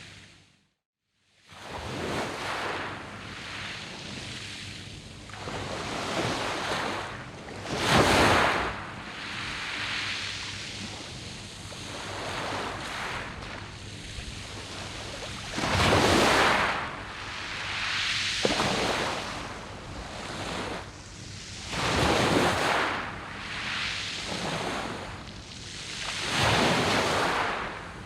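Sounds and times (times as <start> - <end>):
waves breaking on pebbles: 5.4 - 10.9, 11.8 - 21.0, 21.6 - 25.1
rushing wash of water: 12.0 - 20.8.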